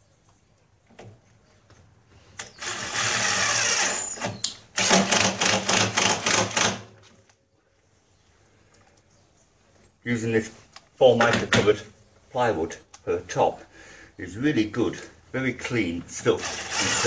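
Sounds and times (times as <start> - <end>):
power drill driving screws: 2.4 - 6.9, 16.4 - 17.0.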